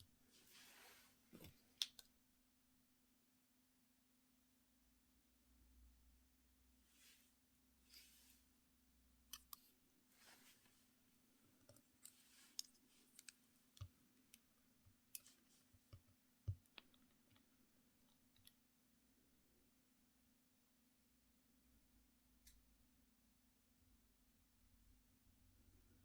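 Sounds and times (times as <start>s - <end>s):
soft brushing swishes: 0.3s - 1.4s, 6.9s - 8.5s, 10.1s - 10.9s
small objects clicking and tapping: 11.6s - 18.6s.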